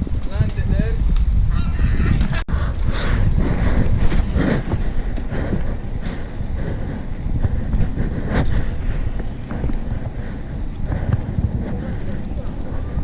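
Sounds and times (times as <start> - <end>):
wind buffeting microphone: 0.0 - 13.0
road and traffic noise: 2.7 - 13.0.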